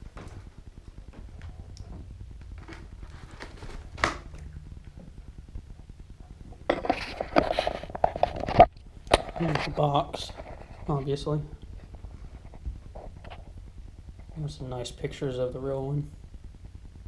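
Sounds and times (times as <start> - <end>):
cardboard rustling: 2.6 - 4.4.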